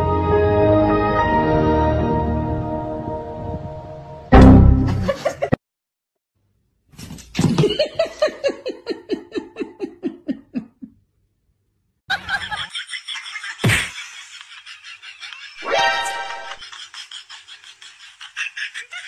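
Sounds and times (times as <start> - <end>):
pulsing laugh: 4.9 - 5.6, 7.6 - 11.0, 12.1 - 19.0.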